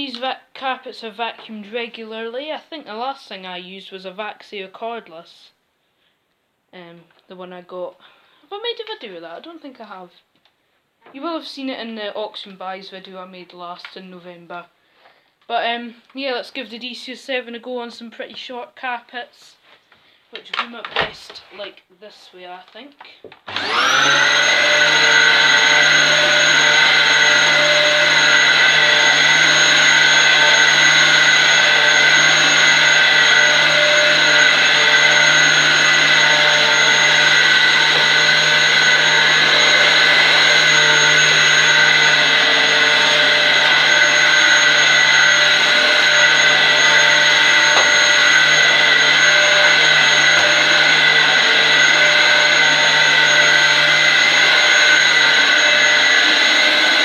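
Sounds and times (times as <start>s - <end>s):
vacuum cleaner running: 23.5s - 57.0s.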